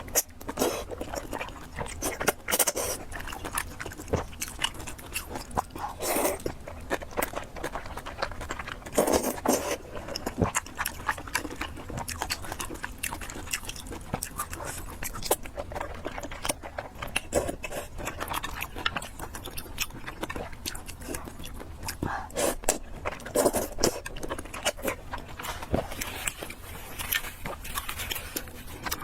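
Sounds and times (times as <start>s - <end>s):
wet chewing and lip smacking: 0.0s - 29.0s.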